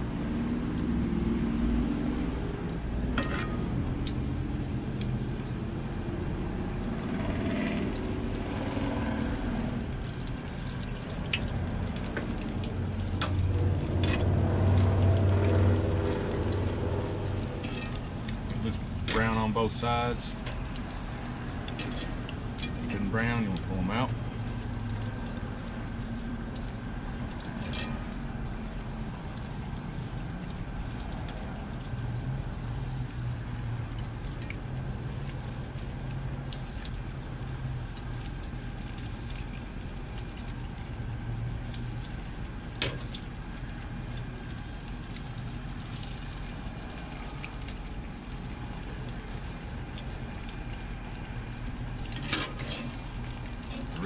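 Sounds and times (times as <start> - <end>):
food deep-frying in oil: 0.0 - 54.0.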